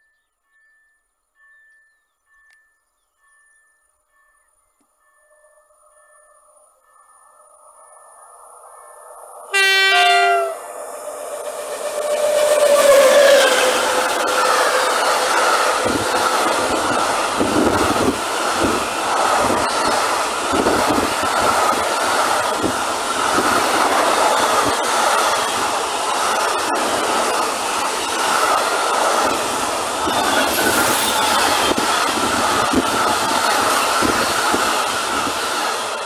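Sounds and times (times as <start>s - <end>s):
wheels rushing on rails: 0.0s - 36.0s
locomotive horn: 9.5s - 10.7s, 11.3s - 15.0s.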